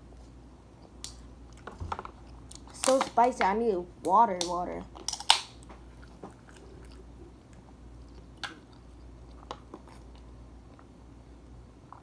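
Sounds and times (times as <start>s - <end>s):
person chewing: 4.9s - 11.0s.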